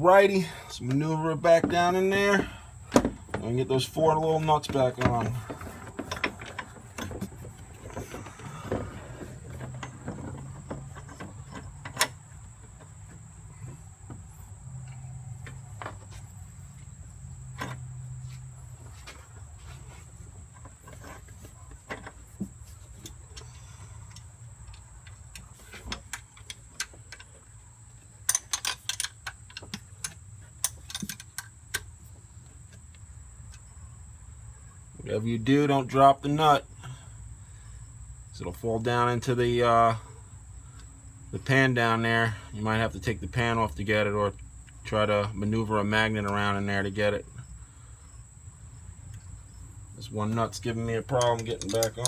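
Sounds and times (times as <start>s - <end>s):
metallic clicks and taps: 51.1s - 52.0s.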